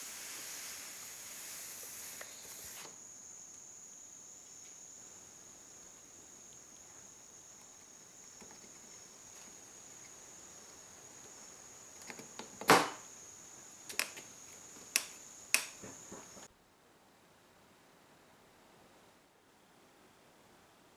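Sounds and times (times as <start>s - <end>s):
wood knocking on wood: 13.9s - 16.5s.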